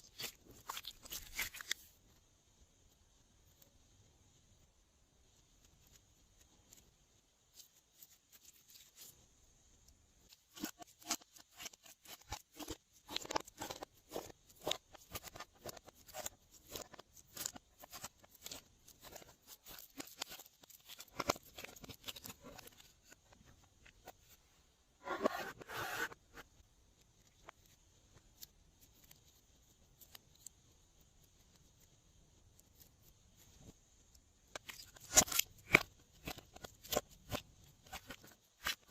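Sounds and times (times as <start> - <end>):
slime squelch: 0.0 - 2.0.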